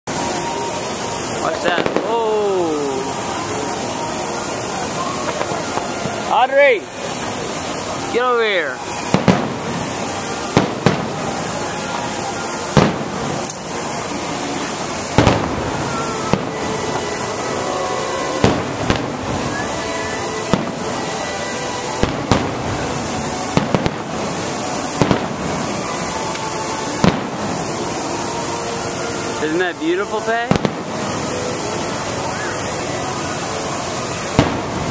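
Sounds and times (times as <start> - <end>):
fireworks bursting: 0.1 - 34.9.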